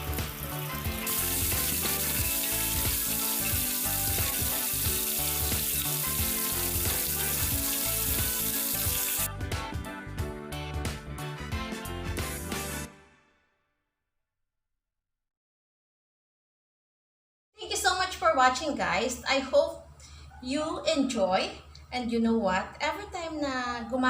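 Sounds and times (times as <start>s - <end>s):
chicken deep-frying in hot oil: 0.0s - 9.3s.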